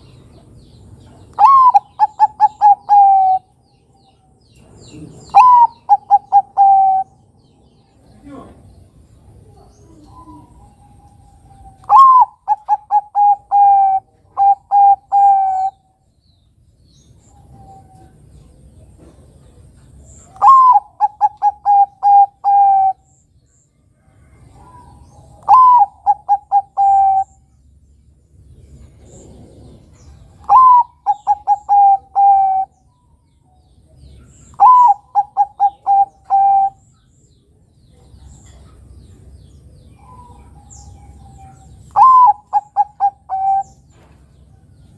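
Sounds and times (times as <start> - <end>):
dove cooing: 1.3 - 3.5, 4.9 - 7.2, 9.4 - 15.9, 20.2 - 23.1, 24.2 - 27.5, 29.0 - 32.8, 34.2 - 36.8, 40.0 - 43.9.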